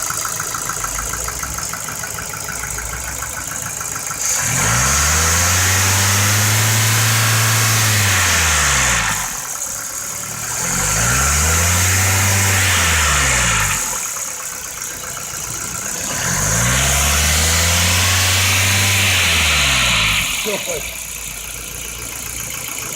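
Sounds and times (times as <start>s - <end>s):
car engine revving with knock: 0.0s - 22.9s.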